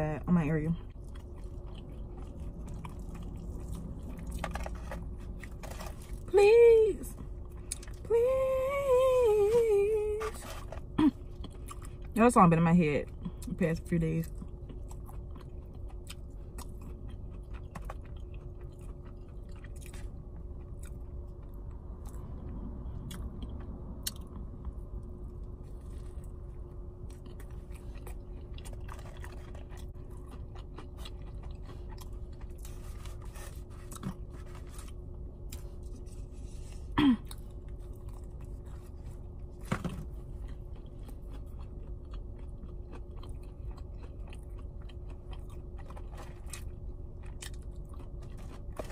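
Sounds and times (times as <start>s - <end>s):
steady low hum: 0.0s - 48.9s
chewing food: 0.7s - 6.3s, 10.2s - 12.2s, 13.0s - 36.2s, 37.2s - 48.9s
small crunches: 1.0s - 6.3s, 27.0s - 36.7s, 37.3s - 48.9s.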